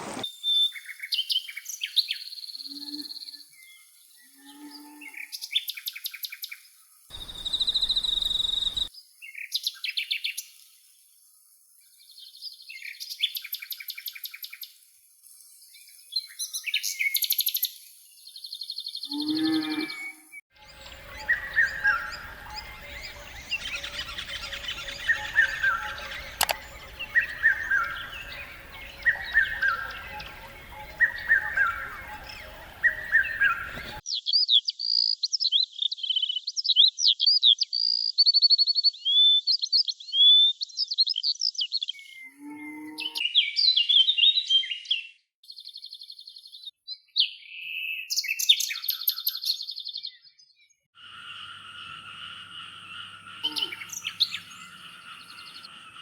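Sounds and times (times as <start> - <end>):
short falling bird call: 0.0 - 0.2, 7.1 - 8.9
trilled and buzzy bird calls: 0.0 - 0.2, 7.1 - 8.9, 19.1 - 34.0, 51.0 - 56.0
dense bird chorus: 7.1 - 8.9, 19.0 - 34.0, 51.0 - 56.0.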